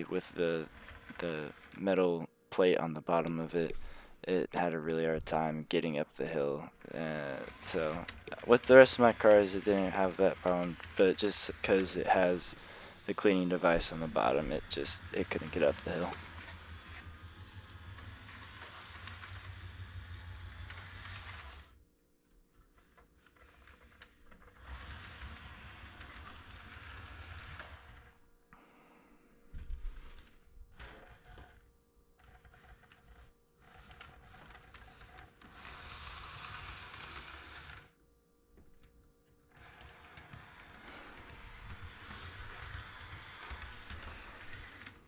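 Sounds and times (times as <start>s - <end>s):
model train motor hum: 0.0s - 1.8s, 6.3s - 21.8s, 23.4s - 28.2s, 30.8s - 31.6s, 32.2s - 38.0s, 39.5s - 45.0s.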